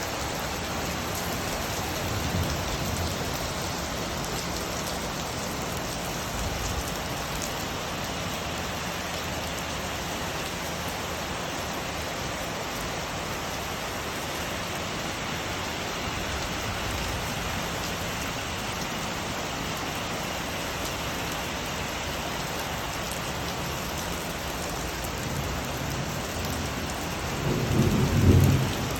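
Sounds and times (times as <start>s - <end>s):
rain falling: 0.0s - 28.9s
low rumble of thunder: 0.9s - 7.4s, 25.2s - 28.9s.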